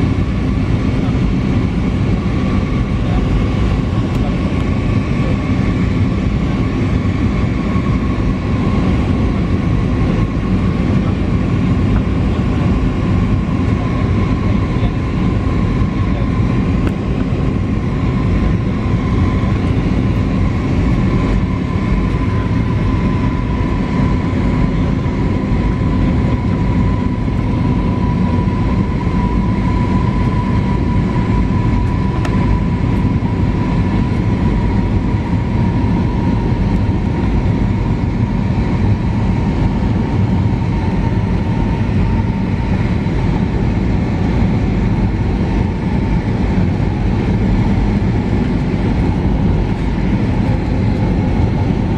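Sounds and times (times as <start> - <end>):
jet engine rumble and whine: 0.0 - 51.9.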